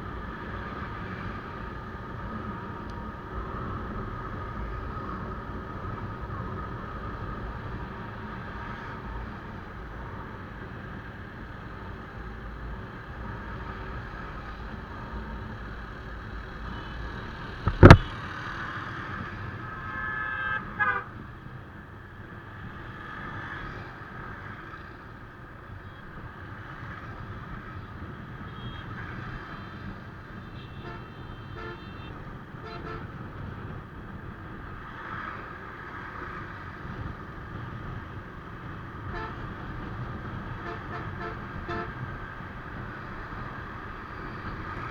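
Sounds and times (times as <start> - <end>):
vehicle horn honking: 30.6 - 33.1, 39.1 - 39.4, 40.6 - 42.0.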